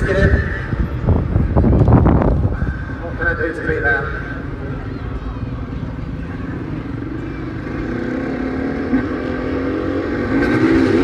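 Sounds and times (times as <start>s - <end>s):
vehicle engine revving: 6.6s - 11.0s.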